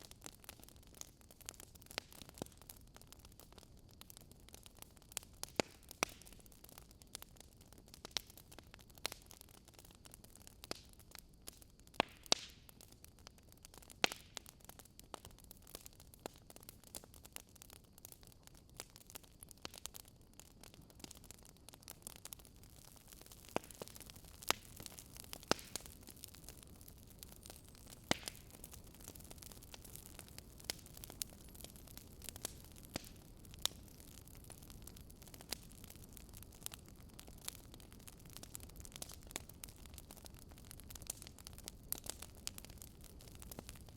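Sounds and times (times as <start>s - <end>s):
sharp pops of fire: 0.0s - 43.9s
soft steady fire hiss: 0.0s - 43.9s
wood fire crackling: 0.0s - 43.9s.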